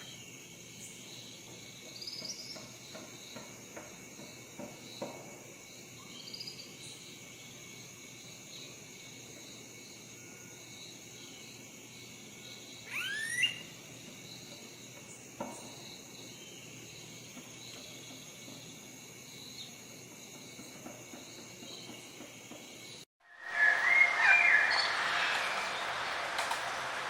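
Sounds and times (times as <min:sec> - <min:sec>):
high-pitched insect chorus: 0:00.0 - 0:26.1
bird call sweeping upward: 0:12.9 - 0:13.7, 0:23.2 - 0:26.9.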